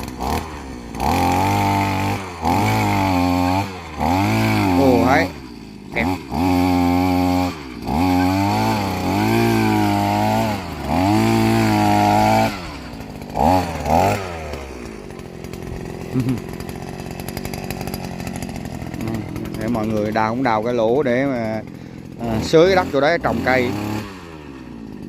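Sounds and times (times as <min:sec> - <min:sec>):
two-stroke auger engine revving: 0:00.0 - 0:25.0.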